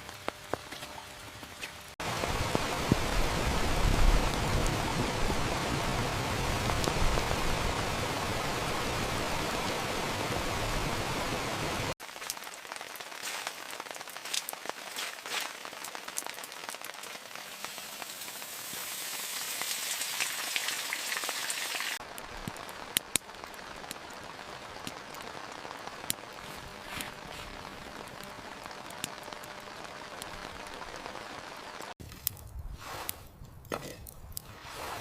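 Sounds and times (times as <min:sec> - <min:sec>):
heavy rain hiss: 0:02.0 - 0:32.0
raindrops tapping: 0:12.0 - 0:18.9.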